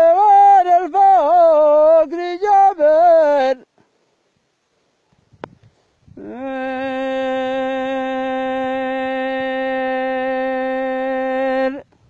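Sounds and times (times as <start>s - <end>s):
person singing long note: 6.2s - 11.9s.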